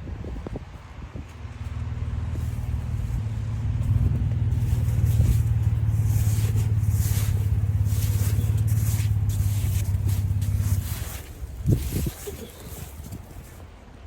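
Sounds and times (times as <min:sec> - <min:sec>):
car engine idling: 0:01.2 - 0:13.5
snow swept off car: 0:03.8 - 0:13.6.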